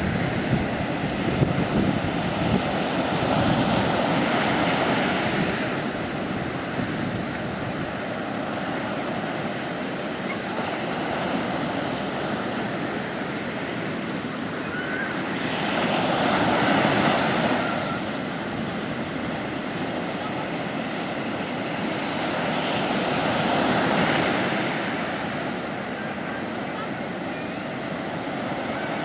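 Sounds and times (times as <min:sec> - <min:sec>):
sea waves breaking on beach: 0:00.0 - 0:29.0.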